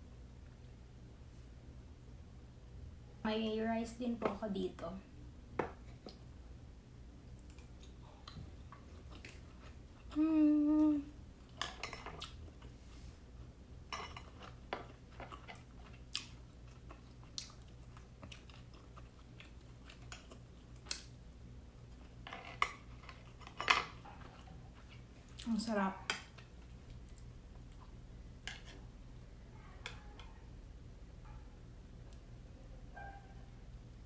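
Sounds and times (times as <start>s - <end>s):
person humming mmm: 10.1s - 11.2s
close chewing with mouth smacks: 14.9s - 21.1s.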